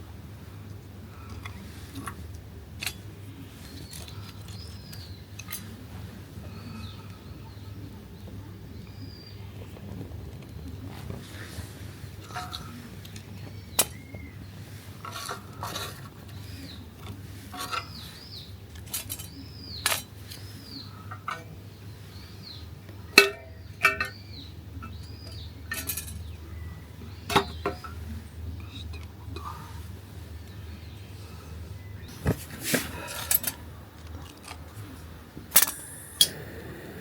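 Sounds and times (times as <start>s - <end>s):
birds whistling: 12.6s - 14.9s, 35.6s - 37.0s.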